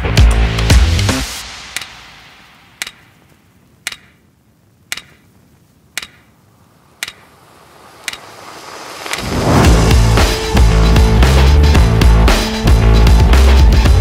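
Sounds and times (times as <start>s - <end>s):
sharp ticks: 0.5s - 9.3s
faint hiss: 1.2s - 11.0s.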